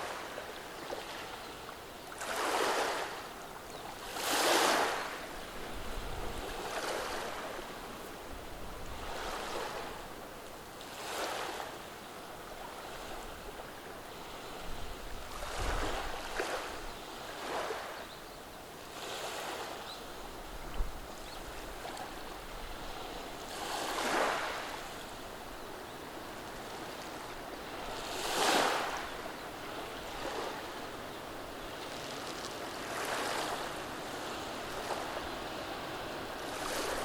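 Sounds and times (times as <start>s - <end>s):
waves washing over cobblestones: 26.4s - 37.0s.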